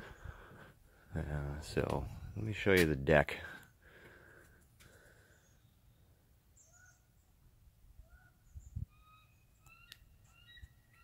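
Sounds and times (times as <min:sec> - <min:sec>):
faint bird chirps: 0:05.0 - 0:11.0.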